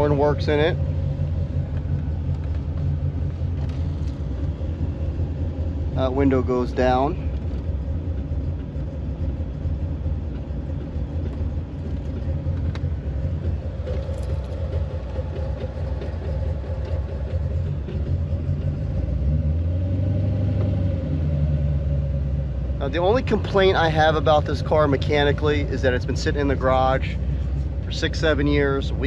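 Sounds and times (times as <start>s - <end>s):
steady hum: 0.0s - 19.2s
car engine idling: 0.0s - 29.0s.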